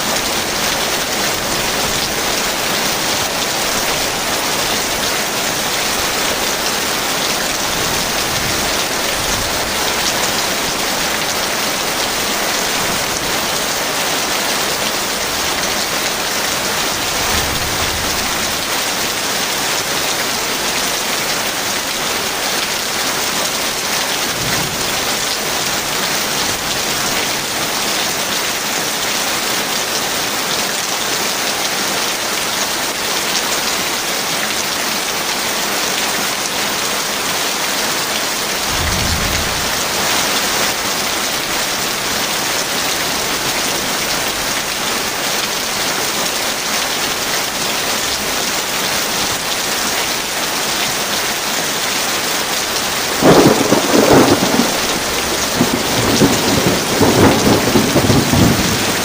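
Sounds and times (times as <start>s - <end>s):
heavy rain falling: 0.0s - 59.0s
thunder rumbling and cracking: 14.6s - 19.8s, 24.1s - 27.2s, 38.4s - 42.6s, 53.2s - 59.0s.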